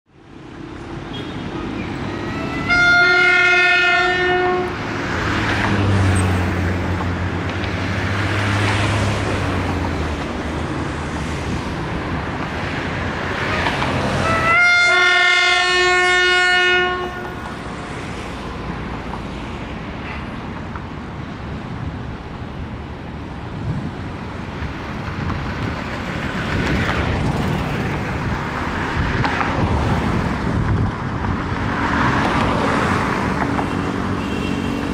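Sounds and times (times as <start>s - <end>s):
train rolling noise: 0.2s - 34.9s
locomotive horn blasts: 2.1s - 4.8s, 13.5s - 17.5s.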